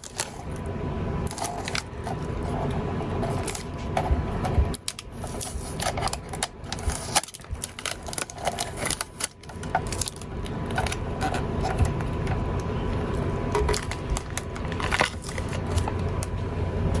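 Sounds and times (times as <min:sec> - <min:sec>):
packaging crackling and crinkling: 0:00.0 - 0:00.6, 0:01.3 - 0:16.4.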